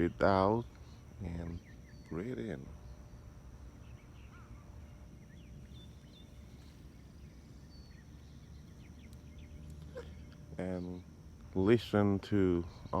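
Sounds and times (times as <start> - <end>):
birds chirping and whistling: 0.8 - 11.0.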